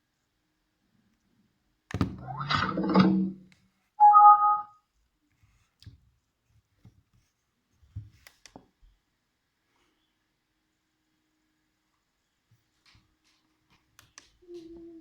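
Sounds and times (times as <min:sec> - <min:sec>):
electronic two-note chime: 0:04.0 - 0:04.7.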